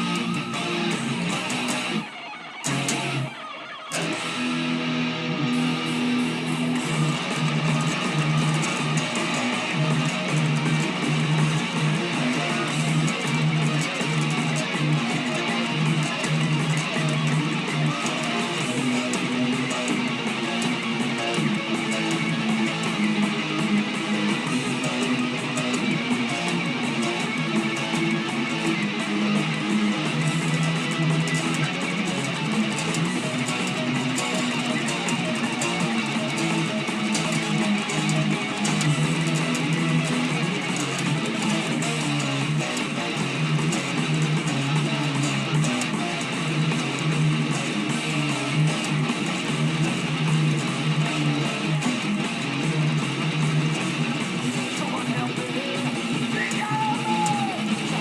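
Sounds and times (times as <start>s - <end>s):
electric guitar heavy metal riff: 0.0s - 58.0s.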